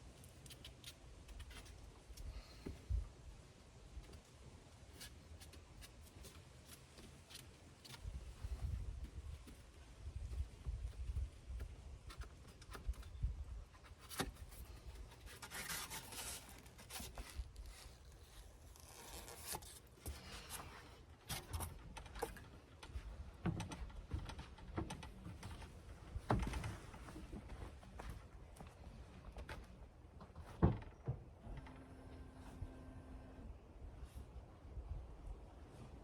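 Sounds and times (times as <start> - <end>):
scraping and rustling: 4.0 - 28.3.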